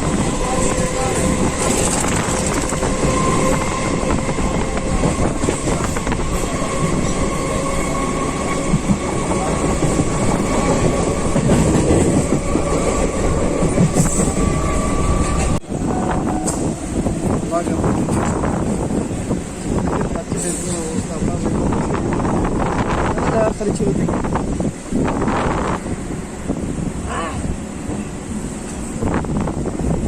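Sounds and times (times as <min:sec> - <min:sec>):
train wheels clattering on track: 0:00.0 - 0:15.6, 0:16.3 - 0:21.5.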